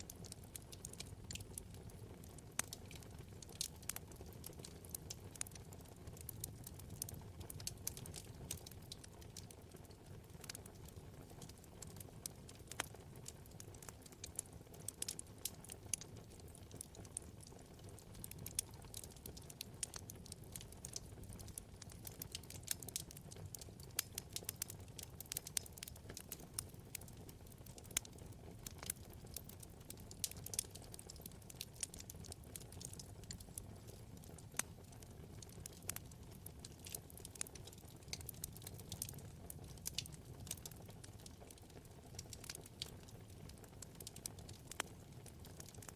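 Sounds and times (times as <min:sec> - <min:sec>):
low rumble of flame: 0:00.0 - 0:45.9
wood fire crackling: 0:00.0 - 0:45.9.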